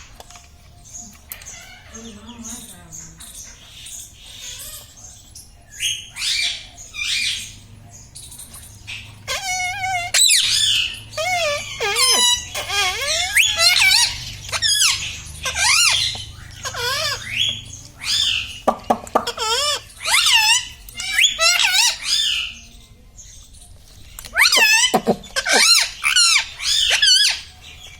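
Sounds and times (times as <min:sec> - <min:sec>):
parrot squawks and whistles: 0:09.3 - 0:22.5, 0:24.3 - 0:27.5.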